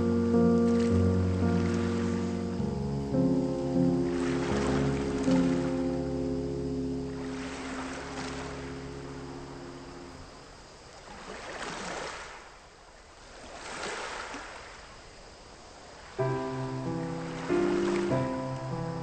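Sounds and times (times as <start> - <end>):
background music: 0.0 - 10.2, 16.2 - 19.0
small waves washing onto shore: 0.6 - 2.6, 3.8 - 19.0.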